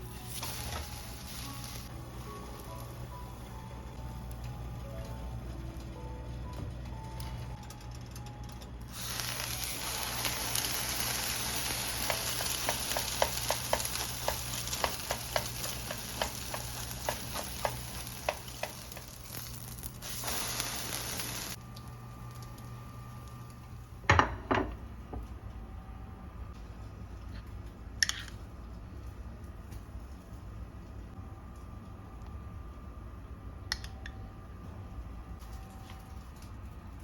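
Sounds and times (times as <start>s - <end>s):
food sizzling in a pan: 0.0s - 3.1s, 8.9s - 21.6s.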